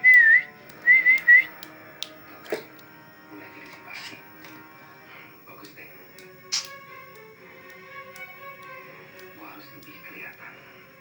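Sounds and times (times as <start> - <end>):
wavering whistled notes: 0.0 - 11.0
sharp click: 5.6 - 10.0.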